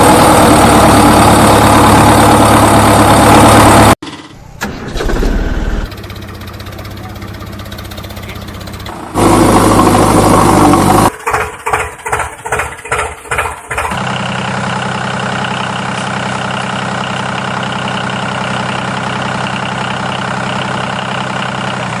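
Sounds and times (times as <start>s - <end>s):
large vehicle engine running: 0.0s - 22.0s.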